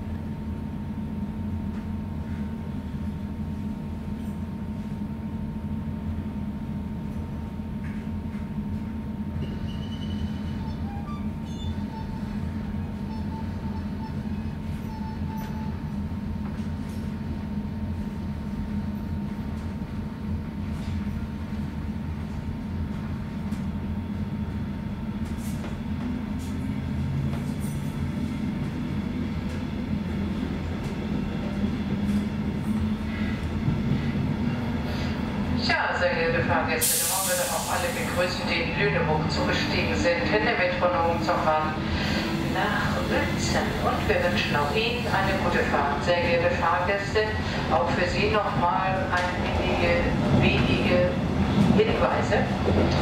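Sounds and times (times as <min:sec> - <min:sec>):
train rumble and hum: 0:00.0 - 0:53.0.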